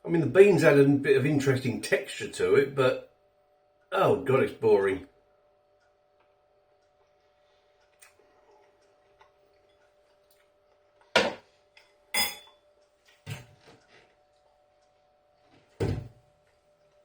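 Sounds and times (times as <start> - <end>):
cutlery clinking against dish: 12.2 - 12.6.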